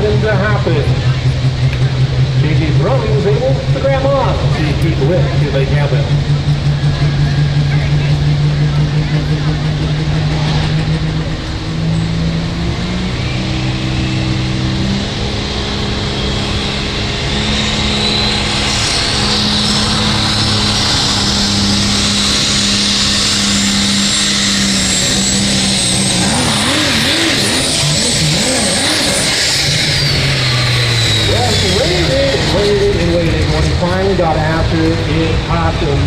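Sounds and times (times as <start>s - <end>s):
diesel truck engine under load: 0.0s - 36.0s
high turbo whistle: 10.2s - 33.1s.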